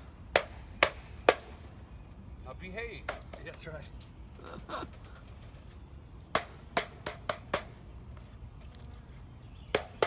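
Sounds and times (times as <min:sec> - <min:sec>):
wooden beehive parts knocking: 0:03.0 - 0:03.7, 0:09.8 - 0:10.0.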